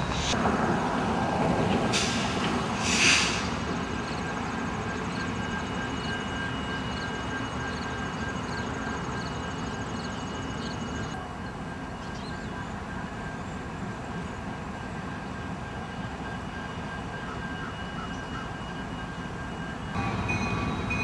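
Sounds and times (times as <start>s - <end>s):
diesel locomotives rumbling: 0.0s - 21.0s
loud air hiss: 1.9s - 3.6s.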